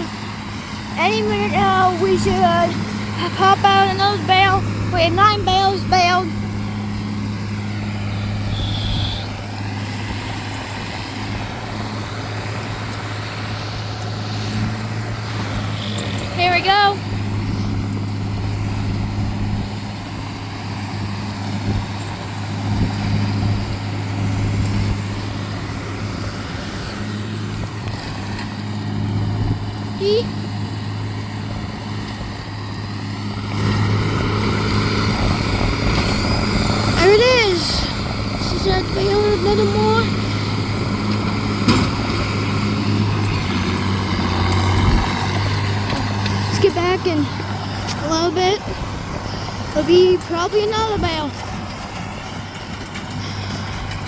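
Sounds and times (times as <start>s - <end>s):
hay baler clatter: 0.0s - 54.0s
tractor engine running: 0.0s - 54.0s
brief high tone: 8.5s - 9.3s.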